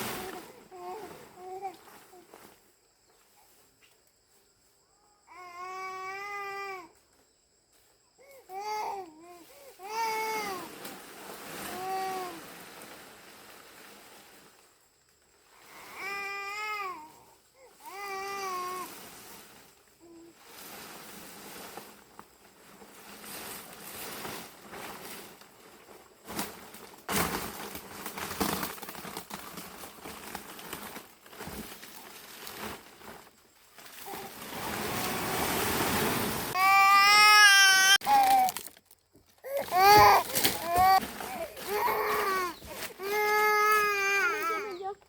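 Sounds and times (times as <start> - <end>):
rustling: 0.0 - 4.9, 9.2 - 45.0
child's high-pitched voice: 44.1 - 45.0.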